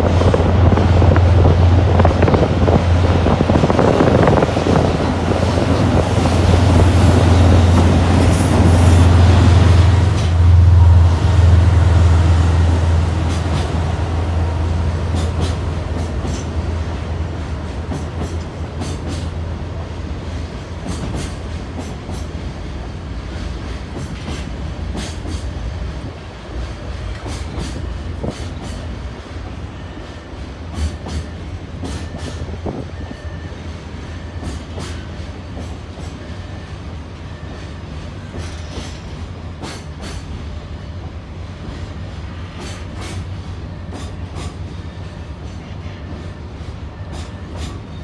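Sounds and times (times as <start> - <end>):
locomotive deep drone: 0.0 - 18.8.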